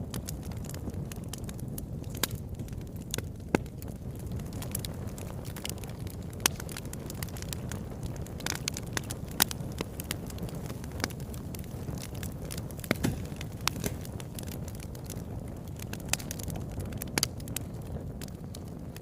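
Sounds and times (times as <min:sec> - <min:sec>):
fire crackling and popping: 0:00.0 - 0:19.0
fire rumbling: 0:00.0 - 0:19.0.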